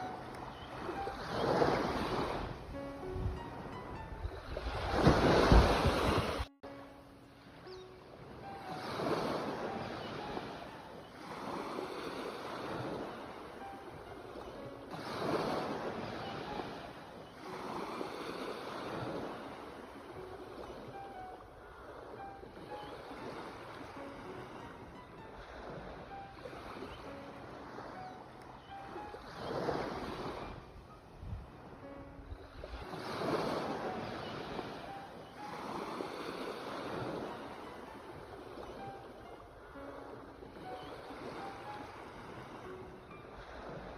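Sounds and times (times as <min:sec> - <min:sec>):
sea waves breaking: 0:00.0 - 0:43.9.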